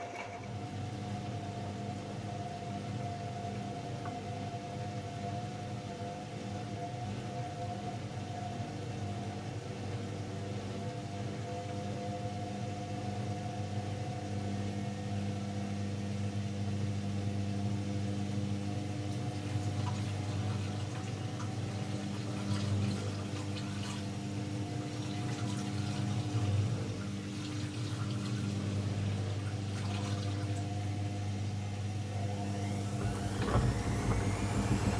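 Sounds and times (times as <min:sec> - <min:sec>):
washing machine humming: 0:00.0 - 0:34.9
water splashing inside machine: 0:18.8 - 0:31.2, 0:31.8 - 0:34.9.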